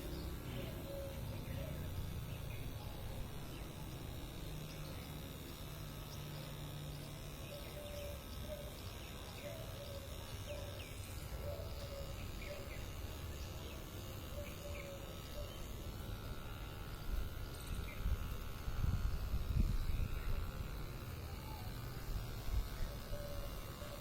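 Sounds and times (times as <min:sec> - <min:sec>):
birds chirping: 0:00.0 - 0:18.6
outdoor background hum: 0:00.0 - 0:24.0.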